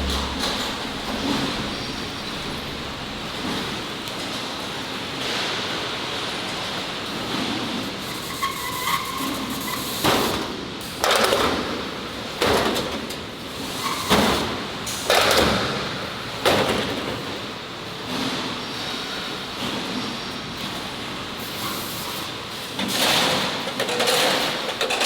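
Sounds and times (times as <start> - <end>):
loud bangs: 0.0 - 3.6
industrial background noise: 0.0 - 25.0.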